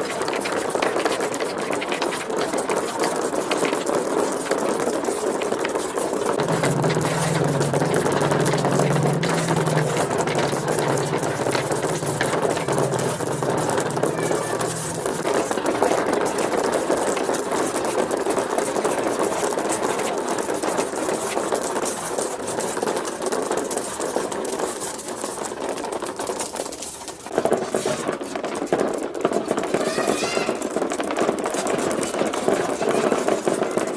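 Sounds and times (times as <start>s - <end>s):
marbles rattling on plastic ramps: 0.0s - 33.9s
low hum: 6.4s - 15.4s.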